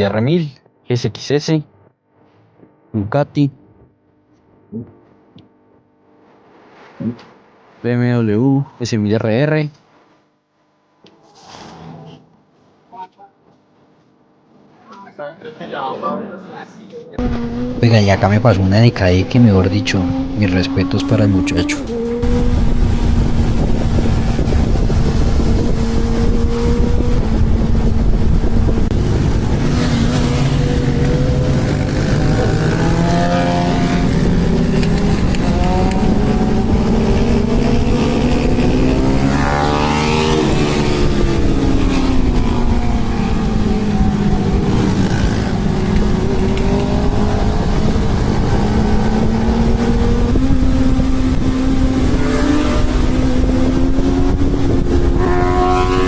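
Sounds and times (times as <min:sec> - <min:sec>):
motorcycle engine cruising: 0:17.2 - 0:17.8, 0:21.0 - 0:56.0
other motorcycles passing: 0:17.2 - 0:18.1, 0:21.0 - 0:56.0.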